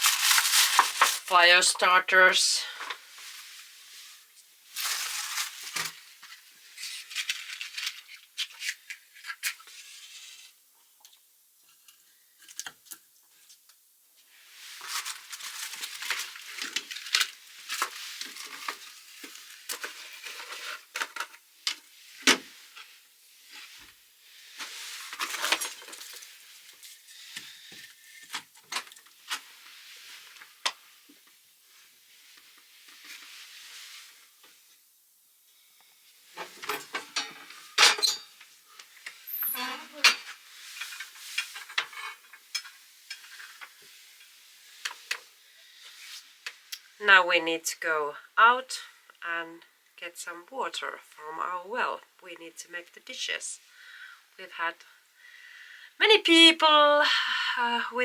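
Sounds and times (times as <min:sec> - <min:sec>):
firewood rustling and clattering: 0:00.0 - 0:01.9, 0:04.2 - 0:09.4, 0:14.7 - 0:24.0, 0:24.6 - 0:31.3, 0:36.3 - 0:45.3.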